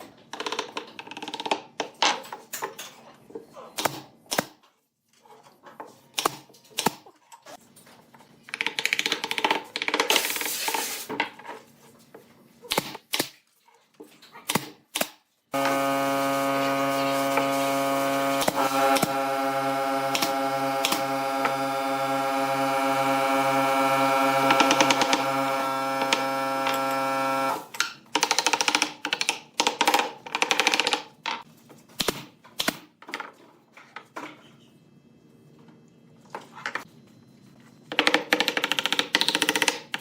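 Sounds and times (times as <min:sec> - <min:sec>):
wood and tools clicking and knocking: 0:00.0 - 0:10.5, 0:24.4 - 0:25.4, 0:27.7 - 0:34.5, 0:37.9 - 0:40.0
power tool motor running: 0:15.6 - 0:27.7.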